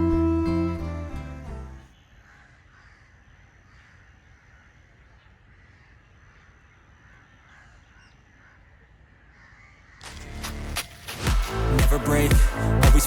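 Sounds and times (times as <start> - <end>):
crows cawing: 2.0 - 10.1.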